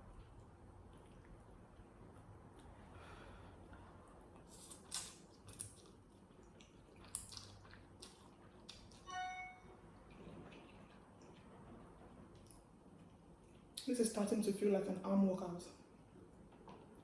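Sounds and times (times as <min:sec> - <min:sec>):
brief high-pitched squeak: 0:09.1 - 0:09.7.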